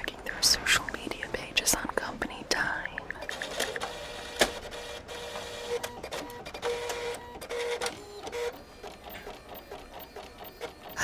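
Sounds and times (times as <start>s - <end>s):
printer mechanical clicks: 3.0s - 11.0s
printer motor whining: 3.2s - 11.0s.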